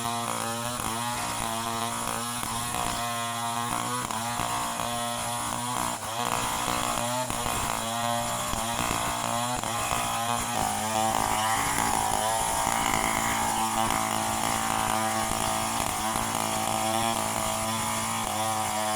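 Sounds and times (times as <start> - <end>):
chainsaw engine revving: 0.0 - 18.9.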